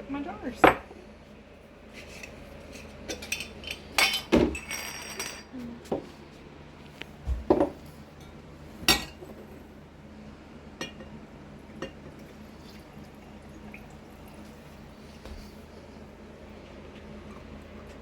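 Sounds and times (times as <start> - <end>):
glass jars and utensils clinking: 3.1 - 5.5
liquid pouring into jars: 12.2 - 15.0.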